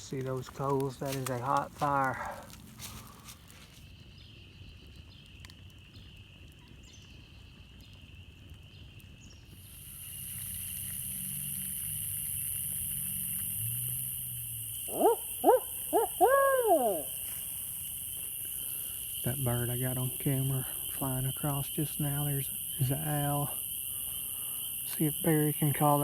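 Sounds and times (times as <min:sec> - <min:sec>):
night insects trilling: 0:00.0 - 0:26.0
high insect buzz: 0:09.6 - 0:26.0
owl hooting: 0:14.4 - 0:17.8.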